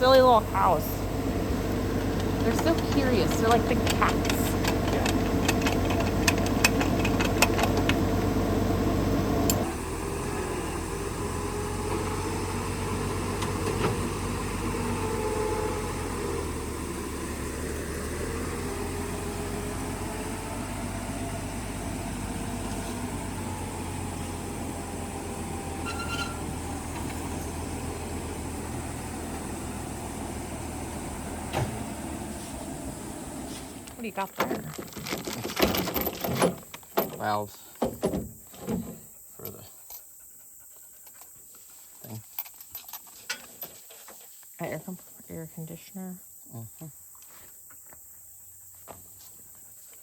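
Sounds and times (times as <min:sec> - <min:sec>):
tractor engine idling: 0:00.0 - 0:37.5.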